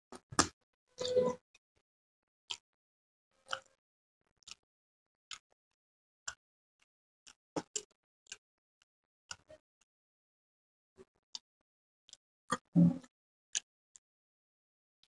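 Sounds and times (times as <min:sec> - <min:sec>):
chewing clicks and smacks: 0:03.5 - 0:03.8, 0:04.4 - 0:04.6, 0:07.2 - 0:08.4.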